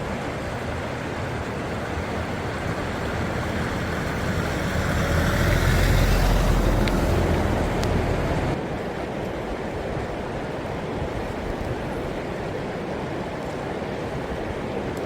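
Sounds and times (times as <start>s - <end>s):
steady rushing noise: 0.0s - 9.1s
vehicle passing close by: 1.0s - 8.6s.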